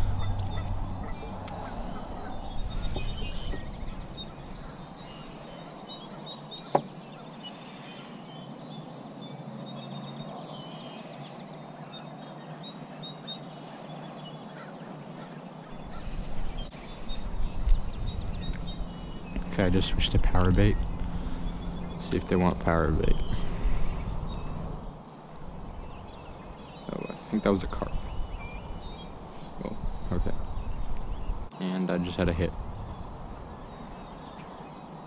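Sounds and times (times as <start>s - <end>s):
wind rumble on microphone: 0.0s - 5.9s, 15.7s - 31.5s, 32.1s - 35.0s
birds chirping: 0.0s - 35.0s.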